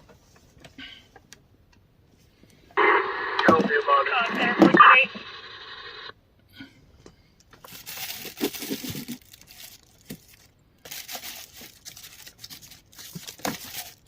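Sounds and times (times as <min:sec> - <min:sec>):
radio scanner static: 0:02.8 - 0:06.1.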